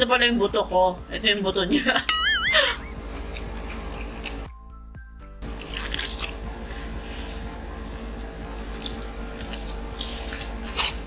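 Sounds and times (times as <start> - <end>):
biting and chewing fried chicken: 3.1 - 4.5, 5.4 - 11.0.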